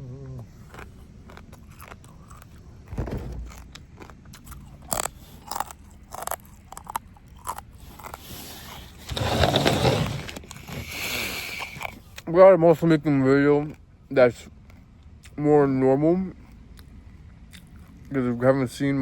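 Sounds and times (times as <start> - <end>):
crunchy chewing: 0.2 - 9.7, 10.3 - 12.3, 13.6 - 15.4, 16.3 - 18.4.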